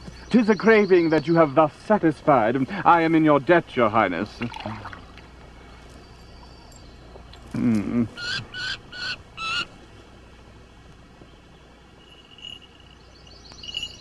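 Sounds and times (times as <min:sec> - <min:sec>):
low wavering bird call: 0:04.7 - 0:10.4, 0:11.4 - 0:14.0
short high bird calls: 0:04.8 - 0:10.0, 0:11.2 - 0:14.0.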